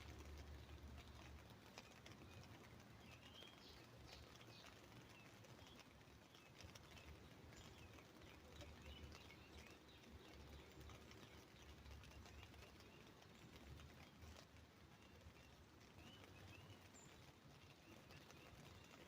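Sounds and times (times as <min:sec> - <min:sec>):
birds chirping: 0:00.0 - 0:19.0
rain patter on umbrella: 0:00.0 - 0:19.0.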